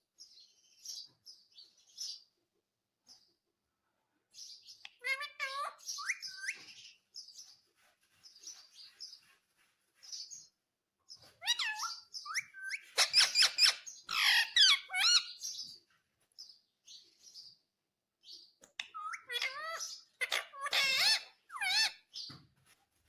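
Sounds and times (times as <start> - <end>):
parakeet calling: 4.8 - 7.0, 11.4 - 15.6, 18.8 - 22.2.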